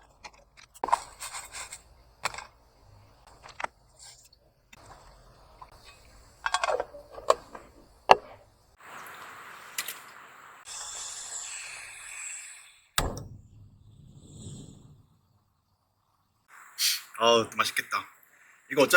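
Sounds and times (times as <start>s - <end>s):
cookware knocks and clatters: 5.8s - 8.4s
hissing noise: 16.4s - 18.9s.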